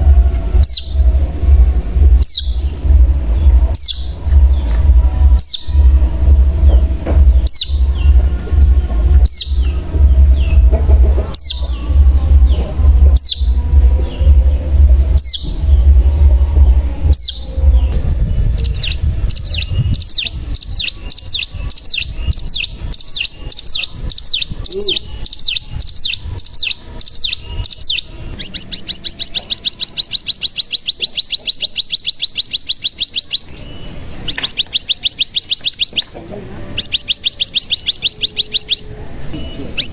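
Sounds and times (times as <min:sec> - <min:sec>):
low hum: 0:00.0 - 0:29.7
bird calling and trilling: 0:00.0 - 0:39.9.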